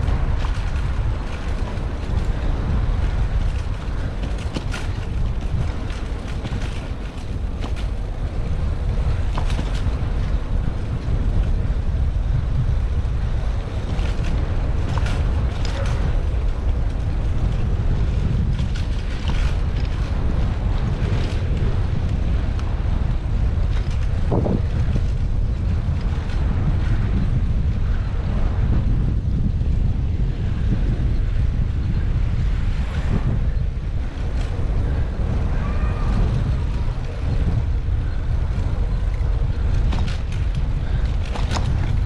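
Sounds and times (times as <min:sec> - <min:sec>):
wind rushing over microphone: 0:00.0 - 0:42.0
small clicks and rattles: 0:03.0 - 0:08.1, 0:13.9 - 0:17.6.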